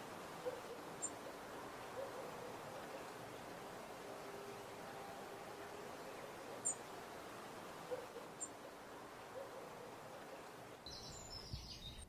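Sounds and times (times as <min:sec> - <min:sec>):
outdoor hiss: 0:00.0 - 0:12.0
soft low bird calls: 0:00.1 - 0:12.0
very high bird chirps: 0:10.9 - 0:12.0.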